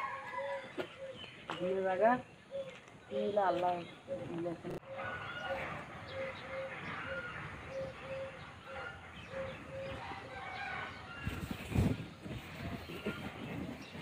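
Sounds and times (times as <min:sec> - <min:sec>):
birds chirping: 0:00.0 - 0:14.0
bird hooting: 0:04.1 - 0:10.4.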